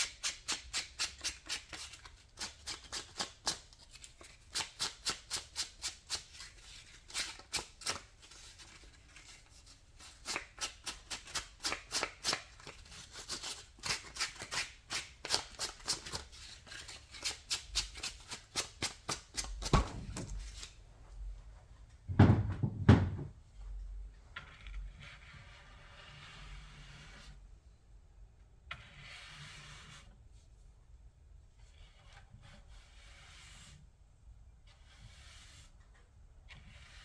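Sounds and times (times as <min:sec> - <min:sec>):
tool knocks: 0:19.6 - 0:20.4, 0:22.1 - 0:23.4.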